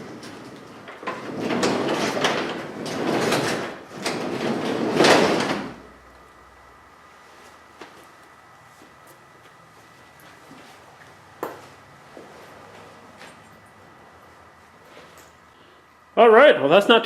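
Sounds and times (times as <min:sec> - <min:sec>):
garage door rolling and rattling: 0:00.0 - 0:06.0.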